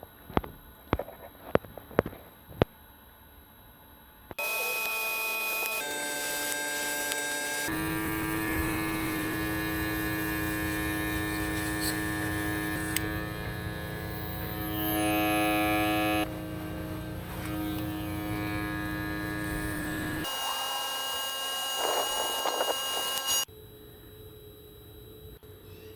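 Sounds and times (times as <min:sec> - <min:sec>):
electric grinder whining: 0:04.4 - 0:23.5.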